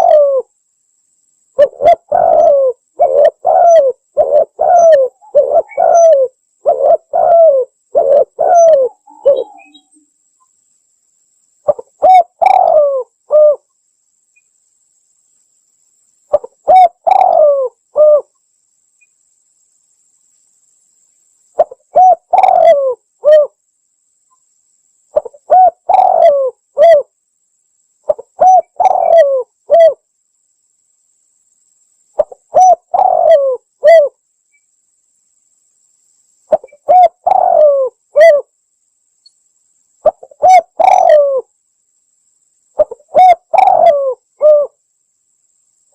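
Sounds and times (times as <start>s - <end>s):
dove cooing: 0.0s - 0.5s, 1.6s - 9.9s, 11.7s - 13.7s, 16.3s - 18.3s, 21.6s - 23.6s, 25.2s - 27.1s, 28.1s - 30.0s, 32.2s - 34.2s, 36.5s - 38.5s, 40.0s - 41.5s, 42.8s - 44.8s.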